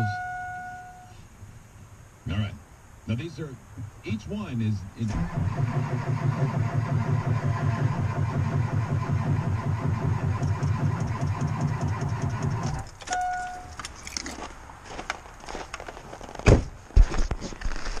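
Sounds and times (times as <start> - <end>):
short beep: 0.0 - 1.2, 13.1 - 13.8
car starter cranking engine: 5.0 - 13.7.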